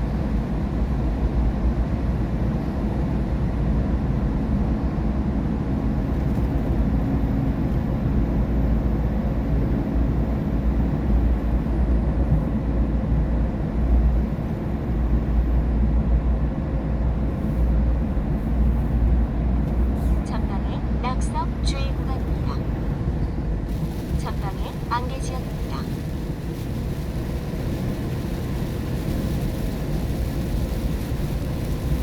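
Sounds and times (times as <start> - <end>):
road and tyre rumble: 0.0 - 32.0
wet road hiss: 23.7 - 32.0.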